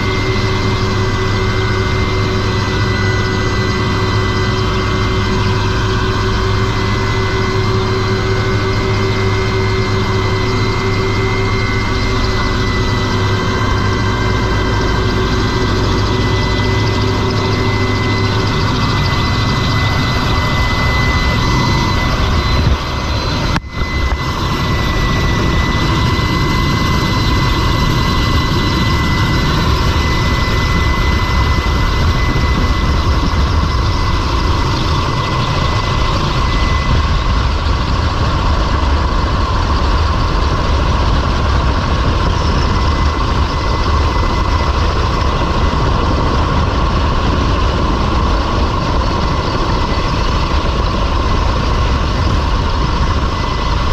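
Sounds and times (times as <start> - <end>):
helicopter rumble and turbine whine: 0.0 - 53.9.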